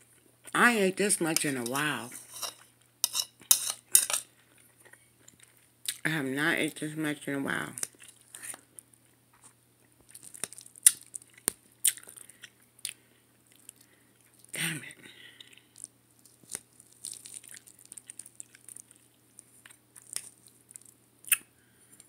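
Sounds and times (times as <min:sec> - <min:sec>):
person chewing and smacking: 0:07.8 - 0:14.5, 0:15.4 - 0:22.0.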